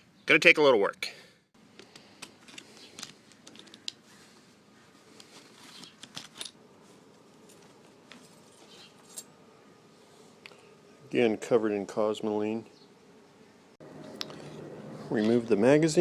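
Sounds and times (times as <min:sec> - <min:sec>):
rifle parts clicking and tapping: 0:01.8 - 0:04.0.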